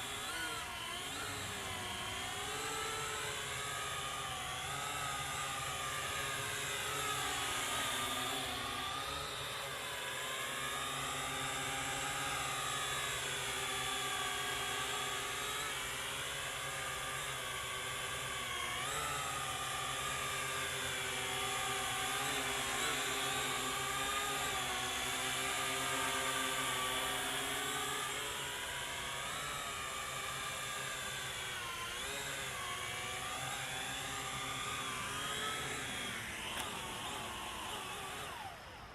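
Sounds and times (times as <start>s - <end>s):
quadcopter motors whining: 0.0s - 38.9s.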